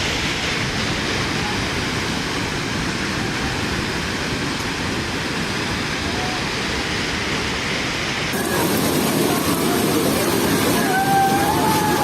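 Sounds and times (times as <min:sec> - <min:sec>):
river floodwater rushing: 0:00.0 - 0:12.0.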